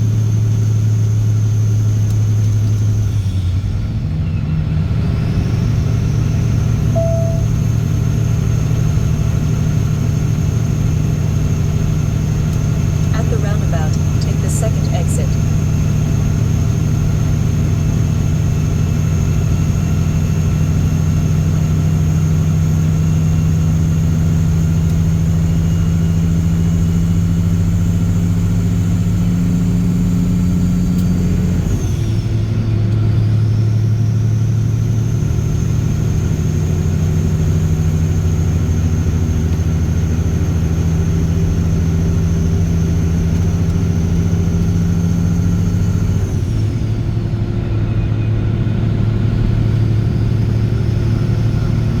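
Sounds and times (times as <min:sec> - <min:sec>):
diesel truck engine under load: 0:00.0 - 0:52.0
high whine: 0:06.9 - 0:08.3.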